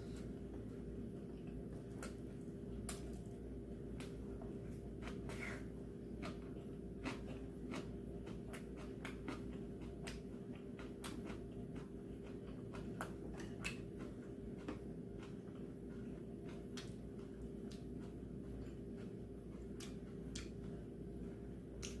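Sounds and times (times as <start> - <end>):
steady low hum: 0.0 - 22.0
eating clicks and smacks: 6.2 - 20.8, 21.8 - 22.0.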